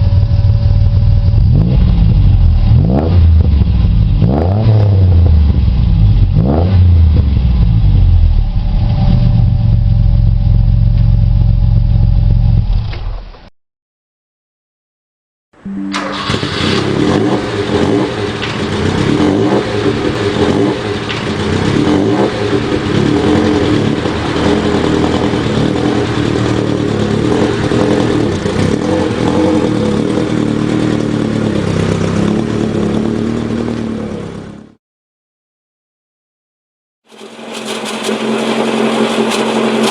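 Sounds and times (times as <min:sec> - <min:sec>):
car exhaust note: 0:15.6 - 0:34.6.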